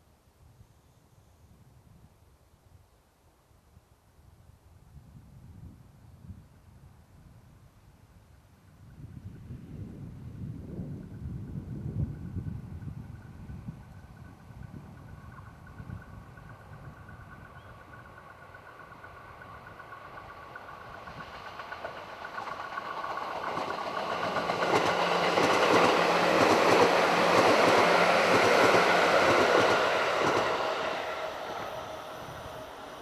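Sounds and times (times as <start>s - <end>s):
electric train passing: 9.0s - 33.0s.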